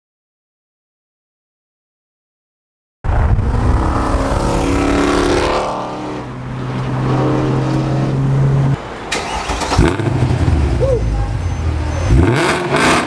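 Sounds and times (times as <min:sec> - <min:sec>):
steady low drone: 0:03.1 - 0:08.8
car engine revving: 0:03.1 - 0:13.0.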